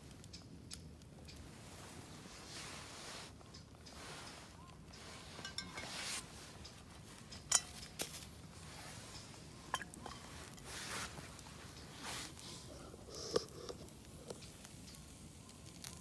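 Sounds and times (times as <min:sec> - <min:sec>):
soft rustling from handling: 0:01.4 - 0:16.0
cookware clinking together: 0:05.4 - 0:06.0, 0:07.5 - 0:07.9.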